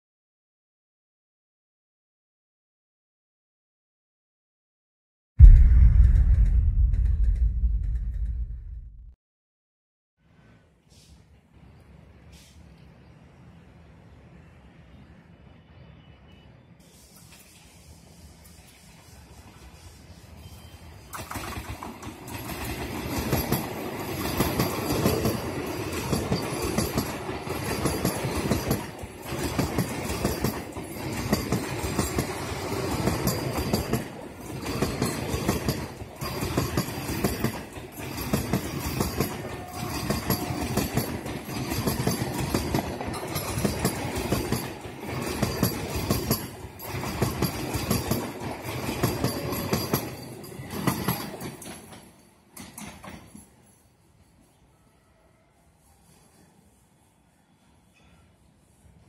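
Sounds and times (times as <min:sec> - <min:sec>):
train wheels clickety-clack: 0:18.4 - 0:54.6.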